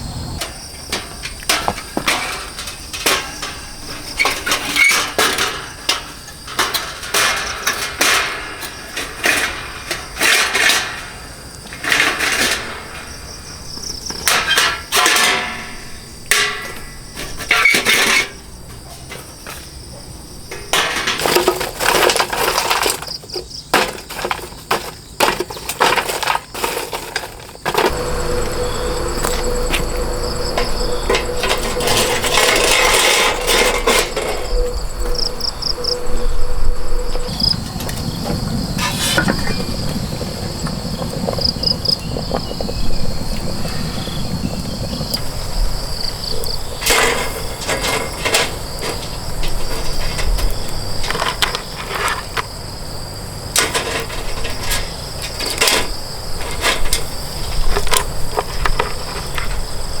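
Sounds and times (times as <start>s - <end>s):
insects chirping: 0.0s - 60.0s
sharp knocks and clatters: 0.4s - 19.8s, 20.5s - 35.5s.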